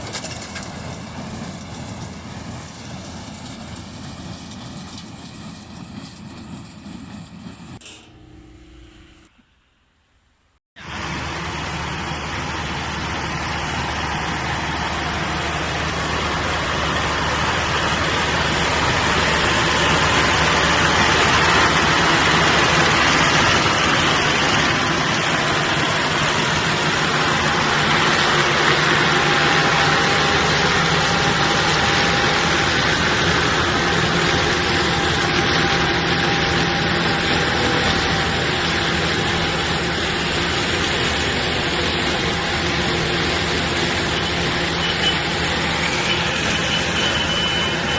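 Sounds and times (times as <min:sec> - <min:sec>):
tractor engine hum: 0:00.0 - 0:09.6, 0:10.8 - 0:47.9
baling machine running: 0:10.8 - 0:47.9.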